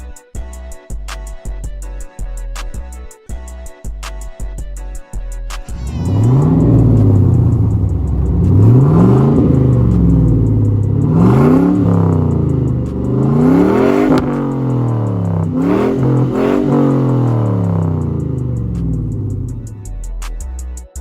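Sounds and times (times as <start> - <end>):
car engine revving: 5.7 - 19.9.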